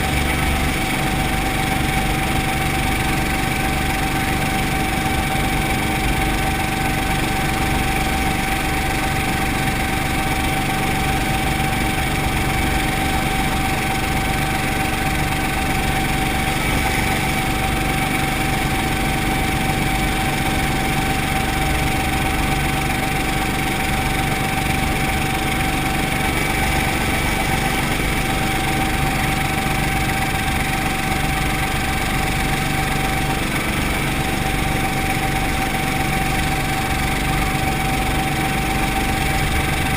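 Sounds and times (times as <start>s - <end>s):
helicopter engine and rotor: 0.0s - 39.9s
steady whine: 0.0s - 39.9s.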